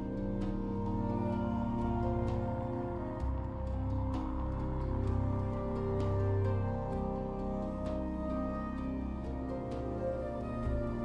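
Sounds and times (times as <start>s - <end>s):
ambient music with drones: 0.0s - 11.0s.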